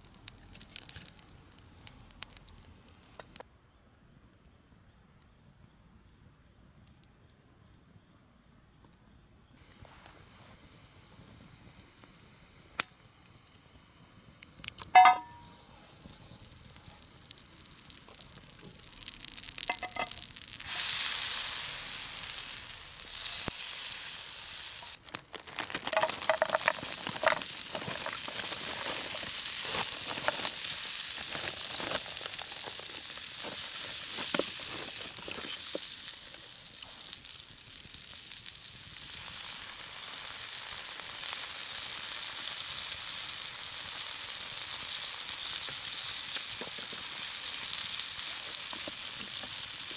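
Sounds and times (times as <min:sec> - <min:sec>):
food sizzling in a pan: 0:14.9 - 0:49.9
sharp metallic clink: 0:15.0 - 0:15.5.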